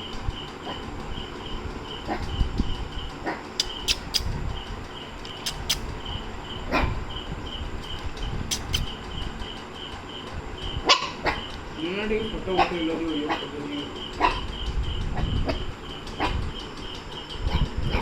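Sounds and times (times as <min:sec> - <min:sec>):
cricket chirping: 0:00.0 - 0:18.0
sharp clicks: 0:03.6 - 0:04.3, 0:05.2 - 0:06.1, 0:07.8 - 0:09.0.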